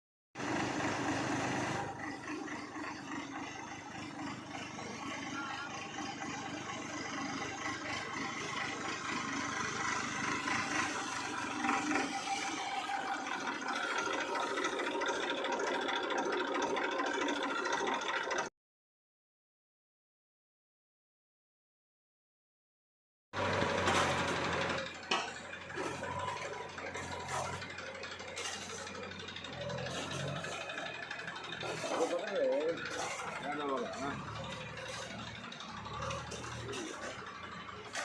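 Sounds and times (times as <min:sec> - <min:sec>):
engine running steadily: 0:00.4 - 0:18.5, 0:23.4 - 0:38.0
voices: 0:04.5 - 0:06.8, 0:25.8 - 0:38.0.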